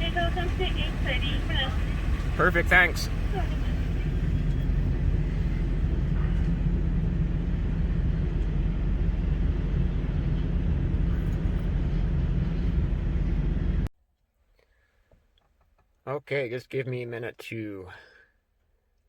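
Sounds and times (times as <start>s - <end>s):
truck engine low drone: 0.0s - 13.9s.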